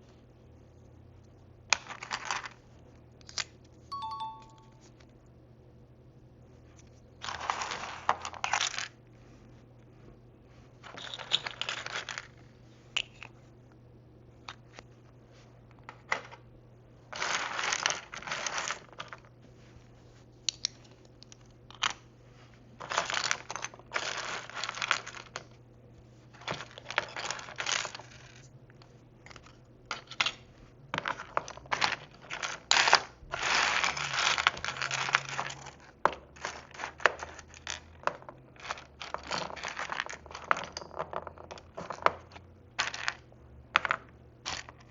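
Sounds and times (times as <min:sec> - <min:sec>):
crinkling rustles: 0:06.6 - 0:13.5, 0:17.1 - 0:43.3.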